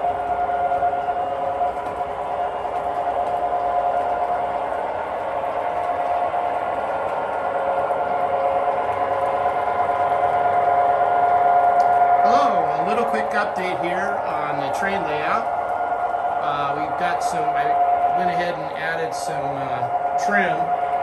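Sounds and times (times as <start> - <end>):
model train mechanical whine: 0.0 - 21.0.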